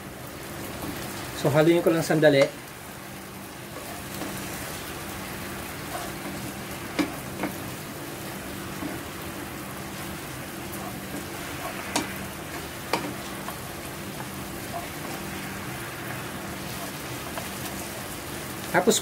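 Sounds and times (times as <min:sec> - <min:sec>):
chicken sizzling in a frying pan: 0:00.0 - 0:19.0
spatula knocking on pan: 0:06.9 - 0:07.6, 0:11.1 - 0:13.6.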